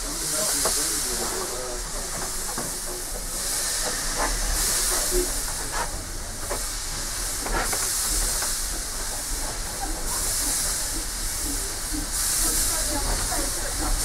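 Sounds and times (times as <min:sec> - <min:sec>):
steam hiss: 0:00.0 - 0:14.0
train knocks and rattles: 0:00.0 - 0:14.0.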